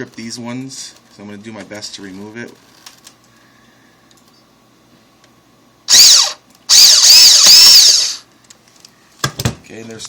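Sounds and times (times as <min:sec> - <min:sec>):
cordless screw gun whining: 0:05.9 - 0:08.2.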